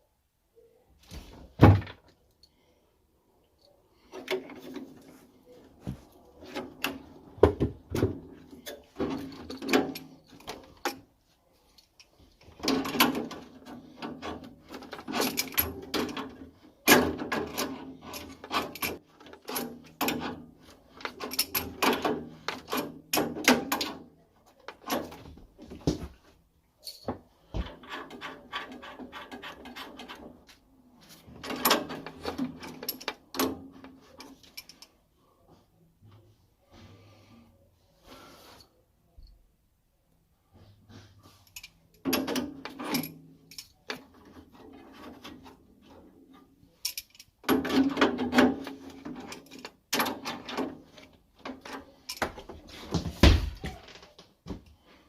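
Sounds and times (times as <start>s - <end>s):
tools and metal parts clattering: 4.0s - 11.1s, 11.7s - 26.2s, 26.8s - 35.0s, 41.3s - 54.0s.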